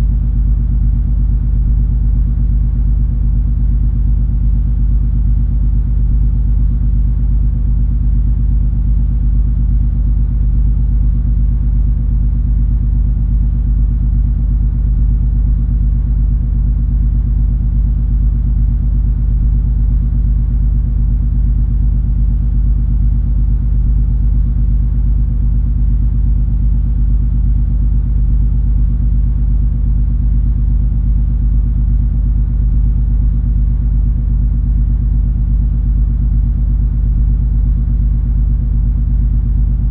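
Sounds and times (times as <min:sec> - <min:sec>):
low steady hum: 0:00.0 - 0:02.5, 0:13.4 - 0:39.9.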